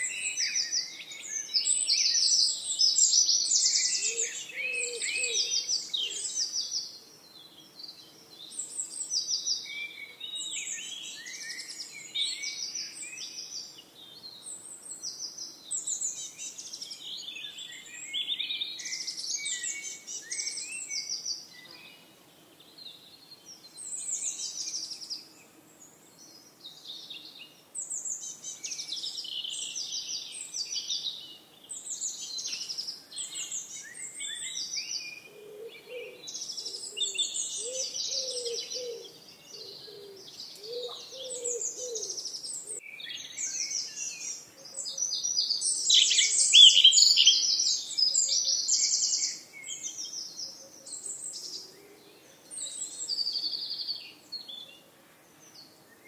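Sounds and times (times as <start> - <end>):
songbirds chirping and trilling: 0.0 - 56.0
lower repeated bird call: 32.0 - 54.2.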